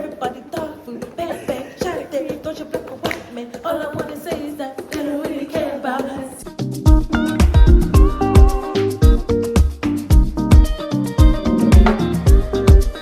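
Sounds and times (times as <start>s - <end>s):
voices singing unaccompanied: 0.0s - 6.6s
sharp claps or knocks: 3.0s - 3.4s, 11.7s - 12.2s.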